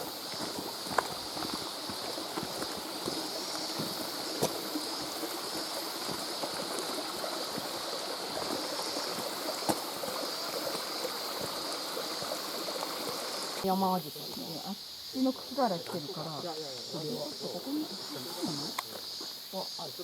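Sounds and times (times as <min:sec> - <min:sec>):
stream flowing over rocks: 0:00.0 - 0:14.6.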